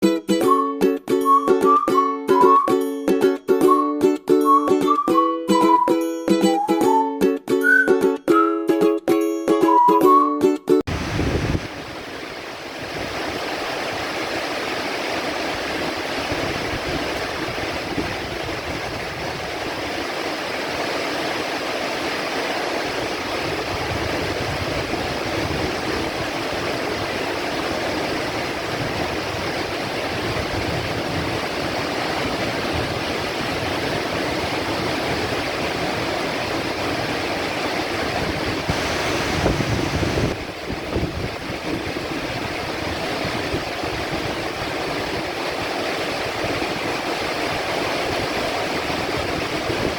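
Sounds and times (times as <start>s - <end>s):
heavy rain hissing: 10.9s - 49.9s.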